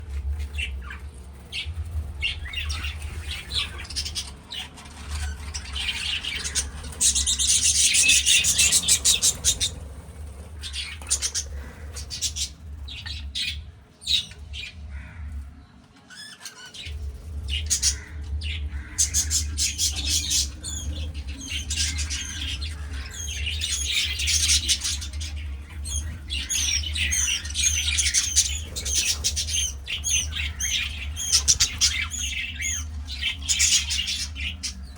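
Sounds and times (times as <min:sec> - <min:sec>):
steady low hum: 0:00.0 - 0:34.9
budgerigars chattering and squawking: 0:00.1 - 0:34.9.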